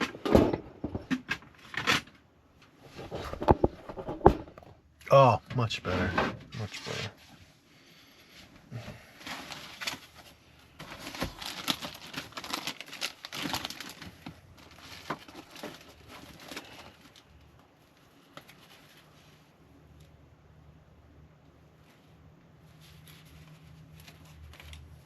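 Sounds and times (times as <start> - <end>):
packaging rustling: 2.8 - 4.8, 9.2 - 17.3.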